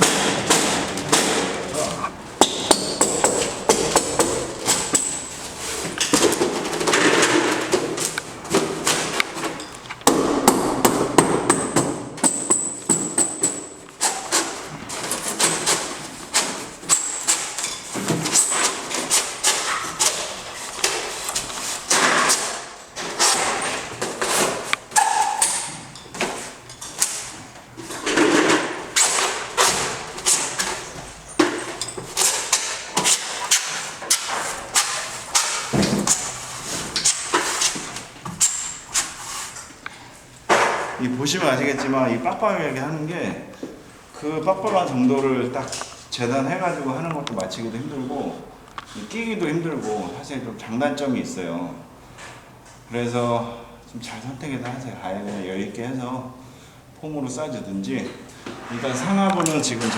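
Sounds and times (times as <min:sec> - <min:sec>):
foam board knocking and thudding: 0:06.1 - 0:13.4, 0:32.2 - 0:37.9.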